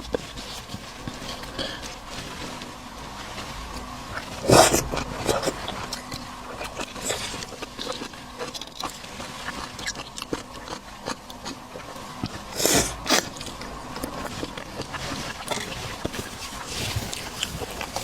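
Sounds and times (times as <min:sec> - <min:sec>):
chewing and biting seafood: 0:00.0 - 0:18.0.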